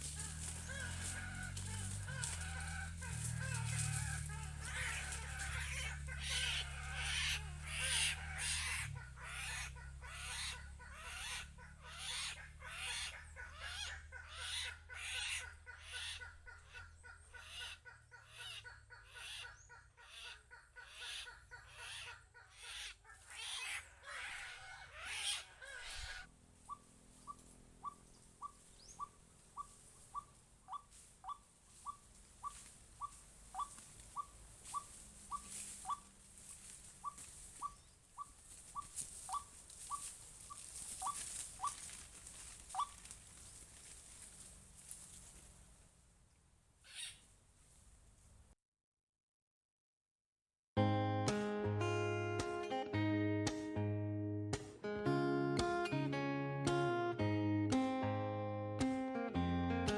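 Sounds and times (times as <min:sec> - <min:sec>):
pulsing bird chorus: 0:00.0 - 0:43.6.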